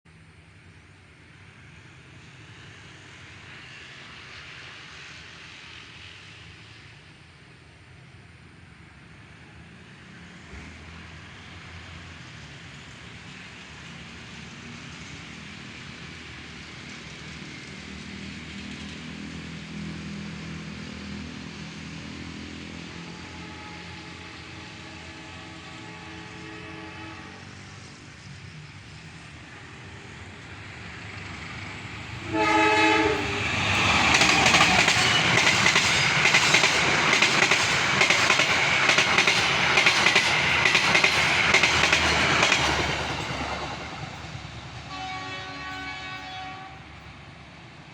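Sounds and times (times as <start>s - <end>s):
locomotive engine droning: 20.8s - 47.9s
train horn: 23.0s - 27.7s, 32.2s - 35.3s, 44.9s - 47.0s.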